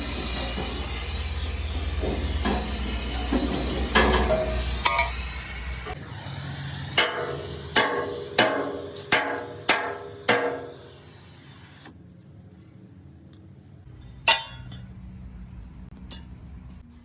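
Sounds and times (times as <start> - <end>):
hammer striking steel: 0.0 - 6.0, 7.0 - 11.1, 14.3 - 14.8
steady hiss: 0.0 - 11.9.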